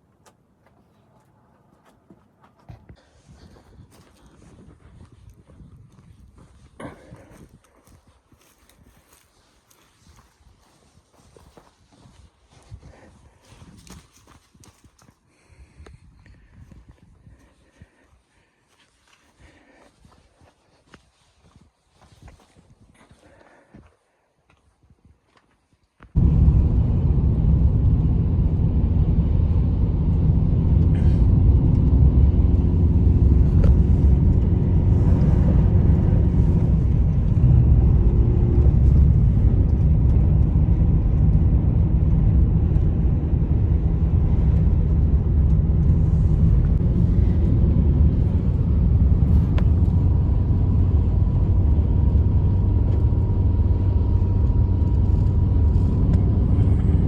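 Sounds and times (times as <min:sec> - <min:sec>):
loud low rumble: 0:26.2 - 0:57.0.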